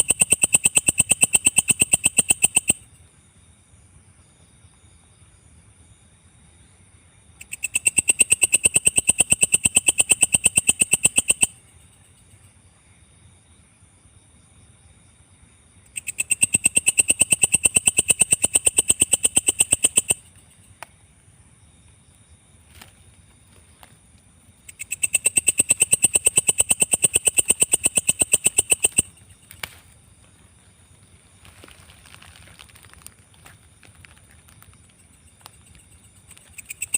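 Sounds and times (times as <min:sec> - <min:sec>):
katydid clicking pulses: 0:00.0 - 0:02.8, 0:07.4 - 0:11.6, 0:15.9 - 0:20.9, 0:24.6 - 0:29.8, 0:34.4 - 0:36.9.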